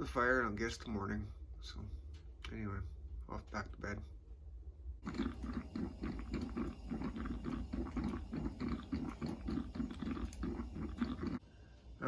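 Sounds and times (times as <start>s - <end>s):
coffee percolator gurgling: 5.0s - 11.4s.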